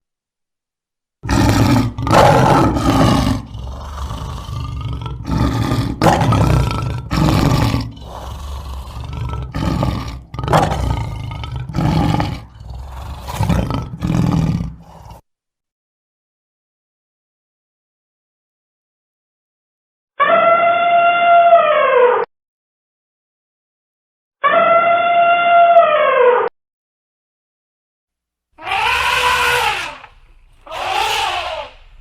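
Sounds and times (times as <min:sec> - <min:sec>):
large animal roaring: 0:01.2 - 0:15.2, 0:28.6 - 0:32.0.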